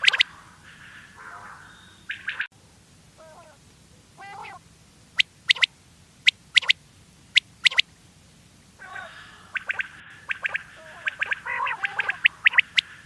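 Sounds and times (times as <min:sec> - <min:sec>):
quail soft low calls: 0:00.0 - 0:02.5, 0:03.2 - 0:04.6, 0:05.2 - 0:07.9, 0:08.8 - 0:13.0
quail three-note whistled call: 0:05.5 - 0:05.7, 0:07.6 - 0:07.8, 0:08.8 - 0:13.0.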